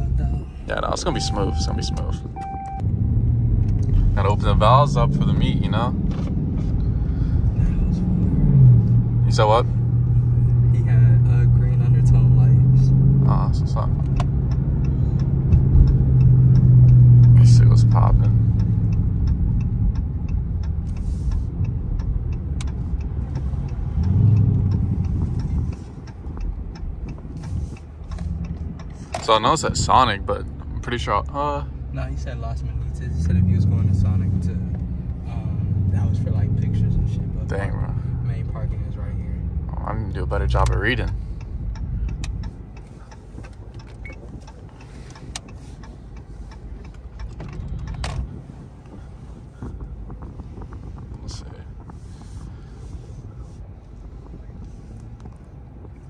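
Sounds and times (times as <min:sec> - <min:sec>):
car engine running: 0:00.0 - 0:56.0
steady ticking: 0:06.8 - 0:56.0
light clicks and rattles: 0:36.3 - 0:52.5.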